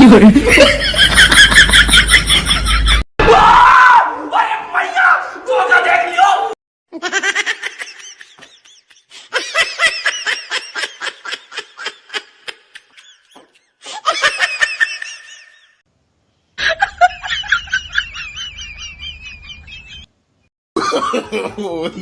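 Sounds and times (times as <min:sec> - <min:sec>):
pulsing laughter: 0:00.0 - 0:03.0, 0:16.6 - 0:20.1.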